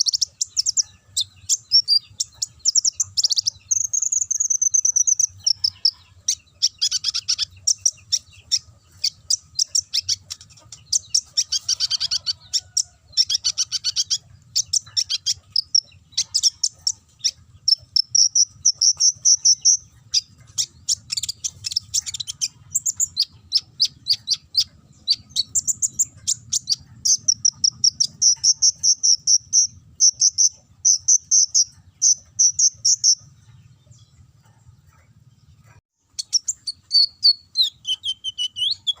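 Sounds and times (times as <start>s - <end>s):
bird singing chirps and trills: 0.0s - 39.0s.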